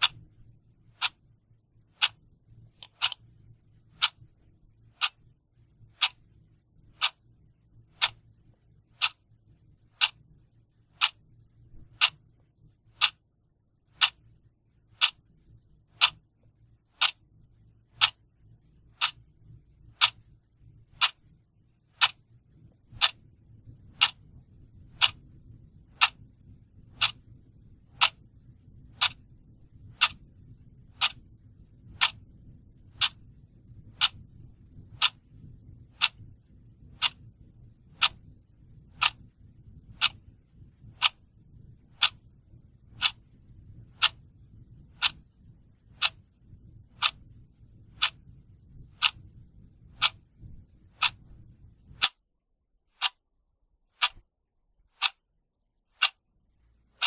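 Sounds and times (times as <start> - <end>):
clock ticking: 0.0 - 52.2, 52.9 - 53.2, 53.9 - 54.3, 54.9 - 55.2, 55.9 - 56.3
faint low hum: 0.0 - 57.0.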